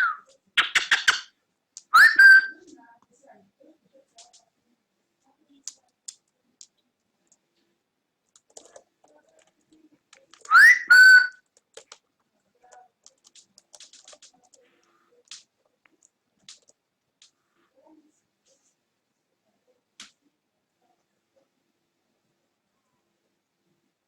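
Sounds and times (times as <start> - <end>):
cockatiel whistling: 2.0 - 2.6, 10.5 - 11.4
faint clicks: 4.1 - 4.5, 5.5 - 10.5, 11.4 - 17.4.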